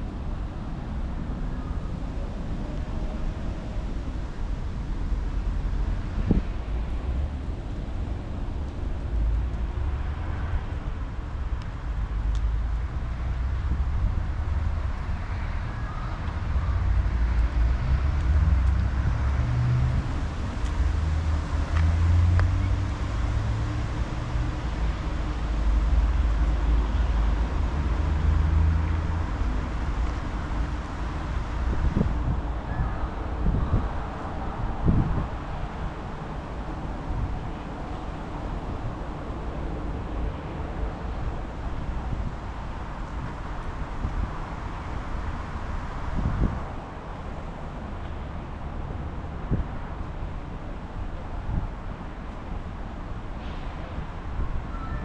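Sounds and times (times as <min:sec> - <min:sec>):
road traffic: 0:00.0 - 0:55.0
wind rumble: 0:00.0 - 0:55.0
wind buffeting microphone: 0:27.2 - 0:48.0.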